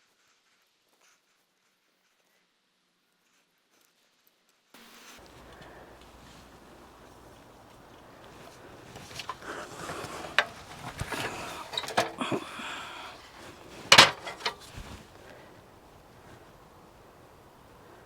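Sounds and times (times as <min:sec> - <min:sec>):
rustling: 0:04.8 - 0:18.0
sharp knocks and clatters: 0:05.2 - 0:15.2.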